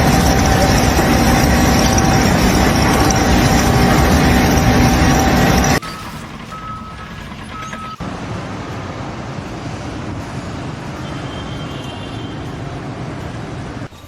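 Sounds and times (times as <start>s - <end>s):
reversing beep: 0.0s - 8.0s
vehicle engine rumble: 0.0s - 14.0s.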